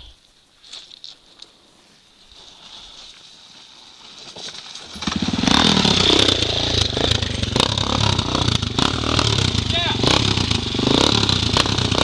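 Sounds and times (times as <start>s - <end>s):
dirt bike engine running: 4.8s - 12.0s.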